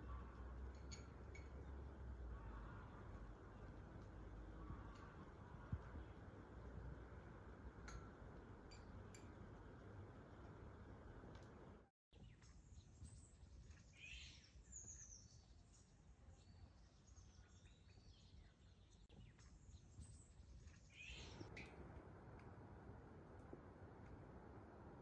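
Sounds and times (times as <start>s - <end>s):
songbird chirps: 12.1s - 22.5s.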